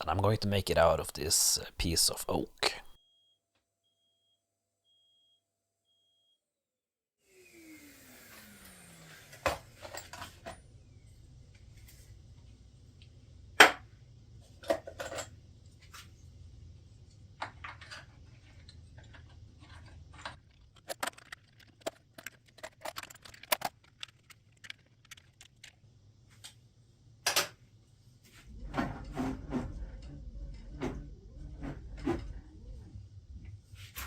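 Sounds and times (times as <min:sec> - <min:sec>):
wood and metal parts clicking: 0:19.0 - 0:25.7
low rumble: 0:28.4 - 0:34.0.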